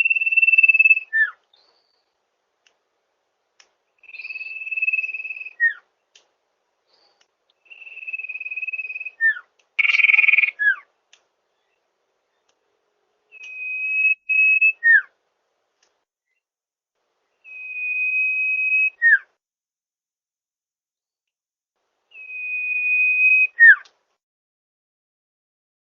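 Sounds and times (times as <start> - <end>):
bird whistling calls: 0.0 - 1.4, 4.0 - 5.8, 7.6 - 10.8, 13.3 - 15.1, 17.4 - 19.3, 22.1 - 23.9.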